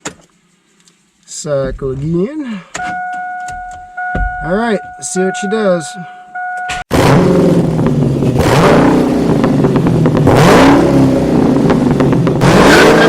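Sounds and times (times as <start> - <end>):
car engine starting and revving: 6.7 - 13.0.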